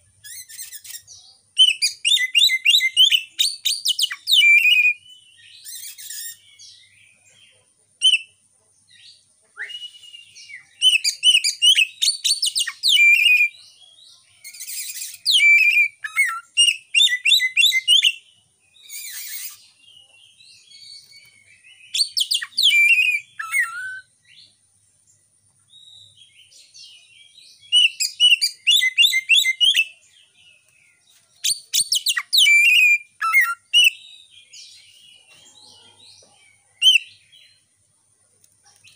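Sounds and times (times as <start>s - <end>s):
bird singing fast whistles: 0.2s - 5.0s, 5.6s - 6.4s, 9.6s - 13.5s, 14.5s - 18.2s, 18.8s - 19.6s, 22.0s - 24.1s, 27.7s - 29.9s, 31.5s - 34.0s.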